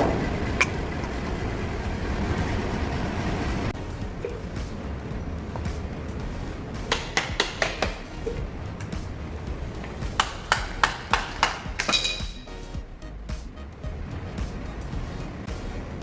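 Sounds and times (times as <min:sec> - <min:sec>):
exhaust fan rumble: 0:00.0 - 0:16.0
hammer striking metal: 0:06.8 - 0:09.1, 0:10.0 - 0:12.6.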